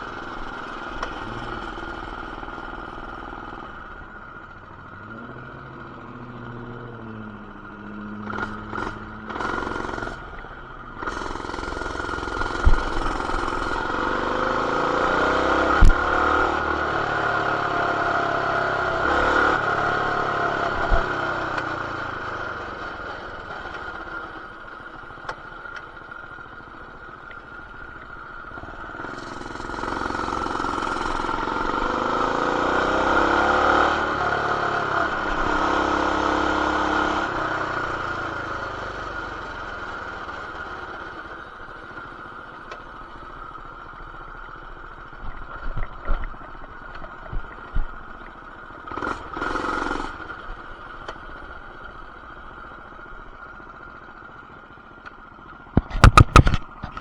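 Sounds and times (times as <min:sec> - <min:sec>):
mini bike engine revving: 0:00.1 - 0:03.7, 0:05.0 - 0:10.4, 0:11.0 - 0:24.2, 0:28.6 - 0:42.0, 0:48.8 - 0:51.5, 0:55.8 - 0:57.0
sharp knocks: 0:55.8 - 0:57.0.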